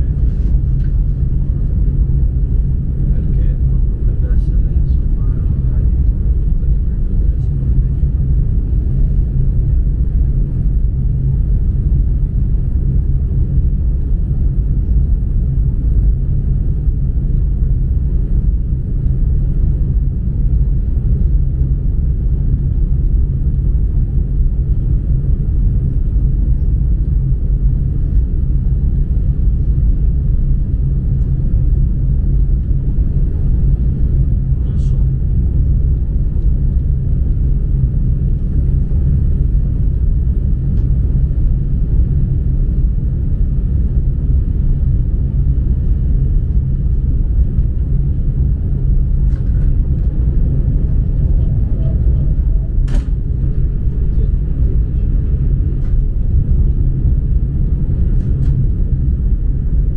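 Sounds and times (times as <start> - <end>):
high-speed train rumbling: 0.0 - 59.9.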